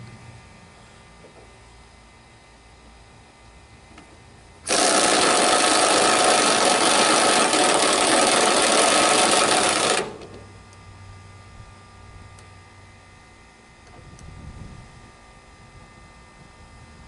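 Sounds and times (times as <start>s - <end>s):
impact wrench hammering: 4.7s - 10.4s.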